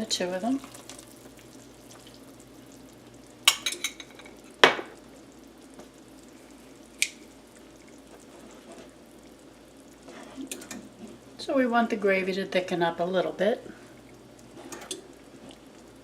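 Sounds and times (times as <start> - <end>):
gravy bubbling in pots: 0.0 - 16.0
spoon and cup clinking on pans: 3.5 - 4.8.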